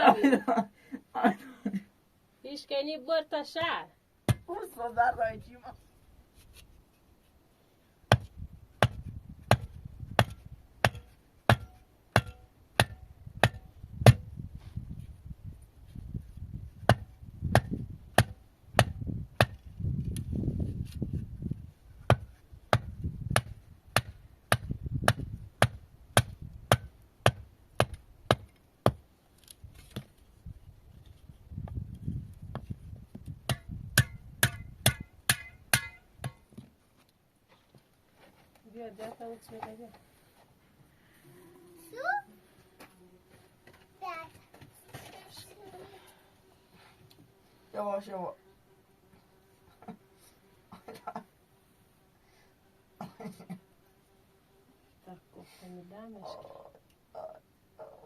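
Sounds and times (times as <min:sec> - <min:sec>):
wood being chopped by hand: 0:04.3 - 0:04.5, 0:08.1 - 0:14.3, 0:16.8 - 0:19.7, 0:22.0 - 0:29.0, 0:32.5 - 0:36.7.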